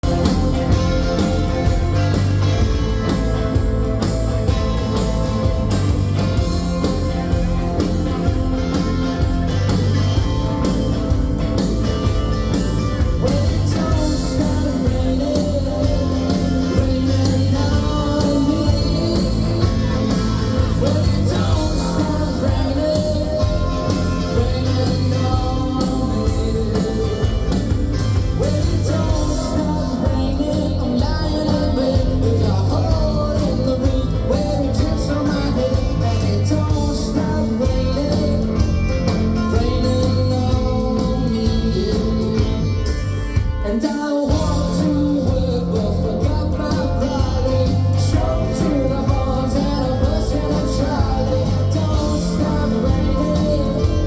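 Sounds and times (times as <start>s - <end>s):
drums playing steady beat: 0.0s - 54.0s
electric guitars: 0.0s - 54.0s
person singing: 12.0s - 42.8s, 43.4s - 54.0s.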